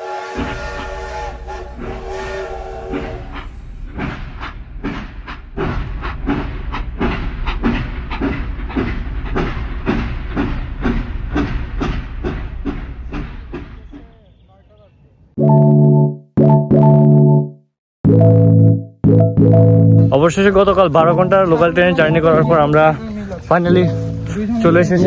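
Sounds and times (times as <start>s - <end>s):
train horn: 0.0s - 3.5s
low rumble of moving train: 0.0s - 15.4s, 20.0s - 25.0s
train wheels clickety-clack: 0.3s - 14.4s, 20.3s - 25.0s.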